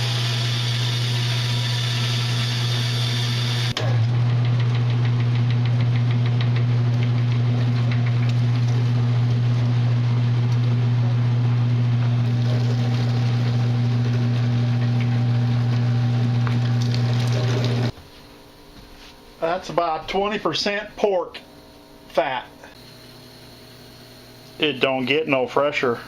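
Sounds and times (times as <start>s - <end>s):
electric meat grinder motor hum: 0.0s - 17.9s.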